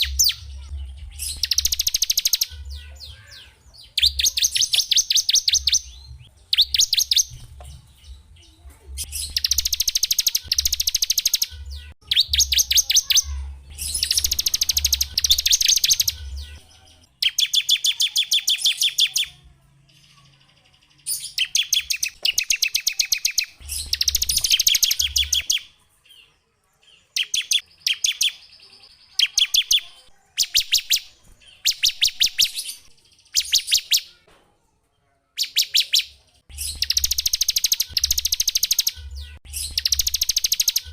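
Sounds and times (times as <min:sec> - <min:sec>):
songbird high-pitched trills: 0:00.0 - 0:19.4, 0:20.0 - 0:25.7, 0:35.4 - 0:40.9.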